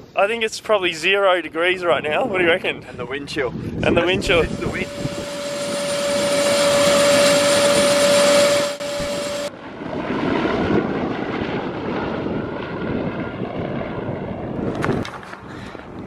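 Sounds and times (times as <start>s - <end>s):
helicopter turbine and rotor: 2.3s - 16.0s.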